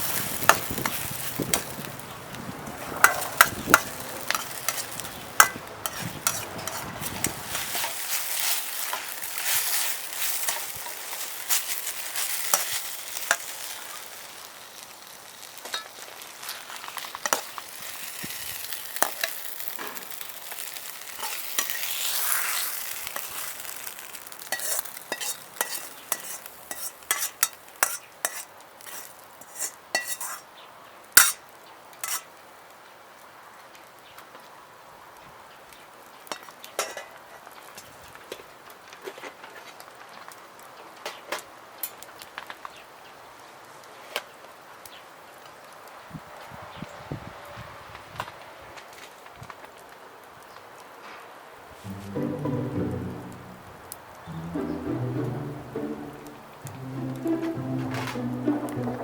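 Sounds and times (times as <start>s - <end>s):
food sizzling in a wok: 0.0s - 30.6s, 31.2s - 32.6s.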